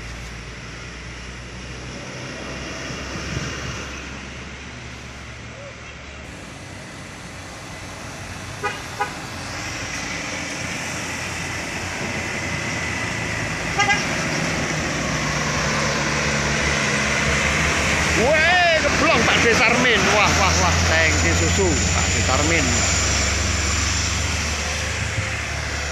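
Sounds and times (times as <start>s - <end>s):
heavy truck engine labouring: 0.0s - 25.9s
truck horn toots: 8.6s - 9.2s, 13.7s - 14.2s.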